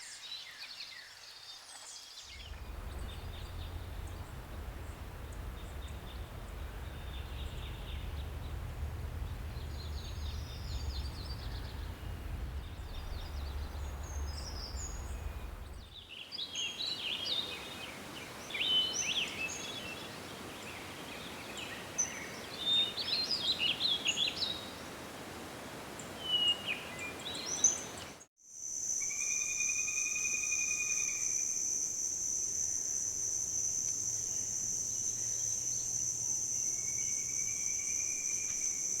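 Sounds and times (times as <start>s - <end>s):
forest birds chirping and singing: 0.0s - 25.0s, 25.9s - 28.3s, 28.9s - 39.0s
low rumble: 2.3s - 16.0s
high-pitched insect trill: 28.5s - 39.0s.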